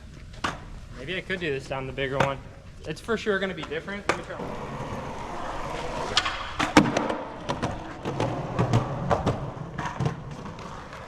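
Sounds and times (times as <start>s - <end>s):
skateboard rolling on concrete: 3.0s - 11.0s
skateboard clacks and knocks: 3.6s - 11.0s.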